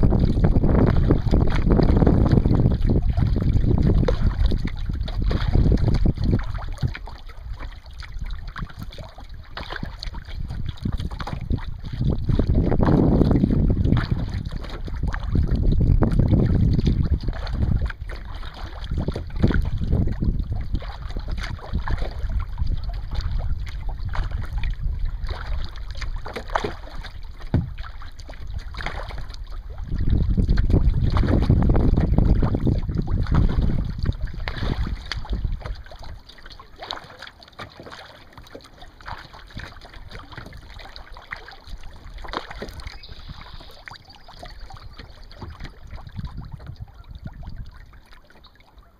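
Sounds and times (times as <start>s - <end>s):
wind buffeting microphone: 0.0s - 36.2s, 41.7s - 48.1s
water splashes: 0.0s - 48.9s
knocks on a kayak: 27.5s - 27.8s.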